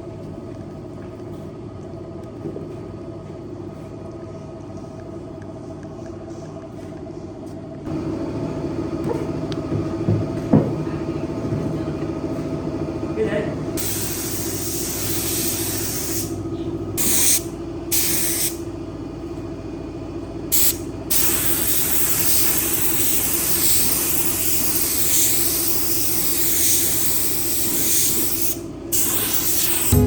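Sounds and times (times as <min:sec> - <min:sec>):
compressed air hissing: 0:13.8 - 0:16.4, 0:17.0 - 0:18.6, 0:20.5 - 0:30.0
machine hum: 0:29.6 - 0:30.0.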